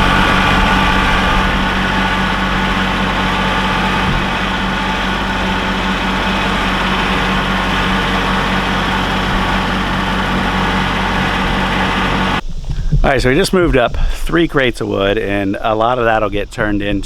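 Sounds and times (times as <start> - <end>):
heavy engine droning: 0.0 - 12.4.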